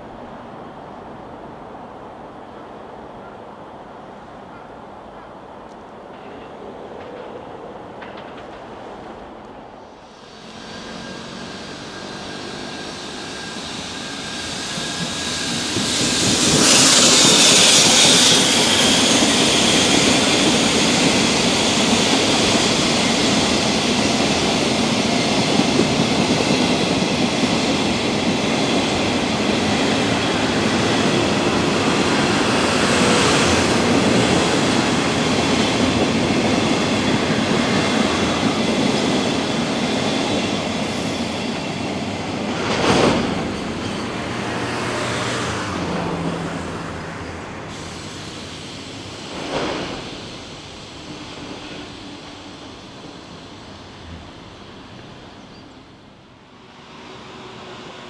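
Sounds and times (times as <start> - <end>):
freight train wheels rumbling: 0.0 - 58.0
high hiss: 9.8 - 25.0, 47.1 - 55.0.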